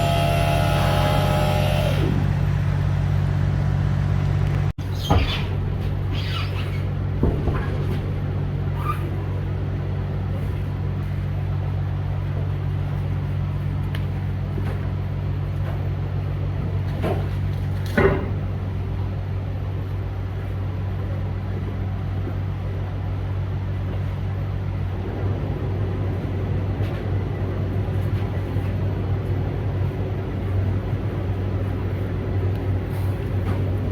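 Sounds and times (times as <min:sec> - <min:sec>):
truck diesel engine droning: 0:00.0 - 0:07.2, 0:18.5 - 0:33.9.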